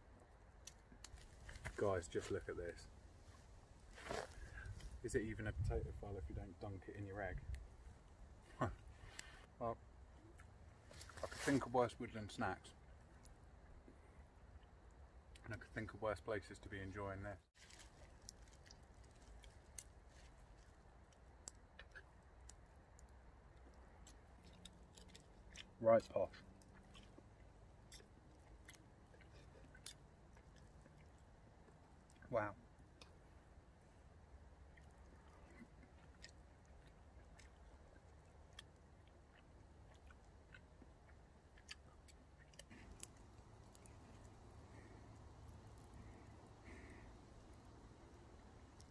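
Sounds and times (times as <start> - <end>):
faint chewing of food: 17.6 - 48.9.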